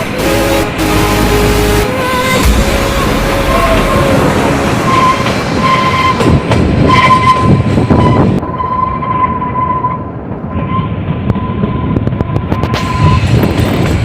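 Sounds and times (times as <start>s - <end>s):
steady high tone: 0.0s - 9.0s
train wheels clattering on rails: 3.6s - 8.4s, 10.2s - 14.0s.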